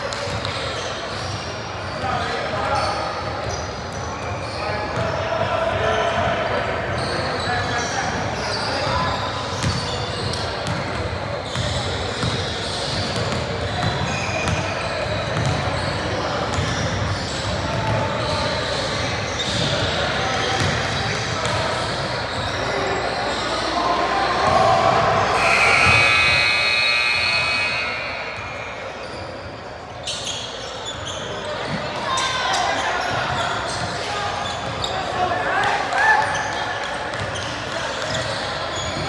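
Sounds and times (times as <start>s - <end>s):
basketball bouncing on court: 0.1s - 2.0s, 9.5s - 22.6s
voices: 15.6s - 39.0s.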